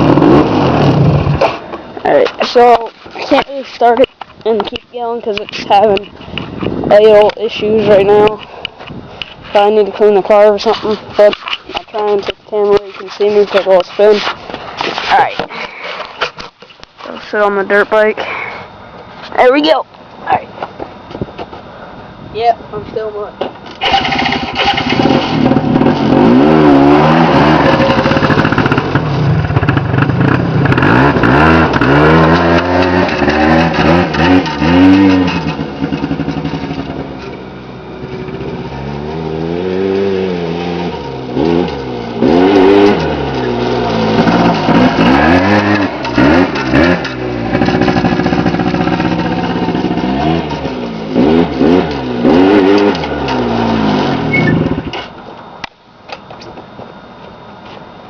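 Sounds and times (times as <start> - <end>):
atv engine revving: 0.0 - 6.2, 23.8 - 55.0.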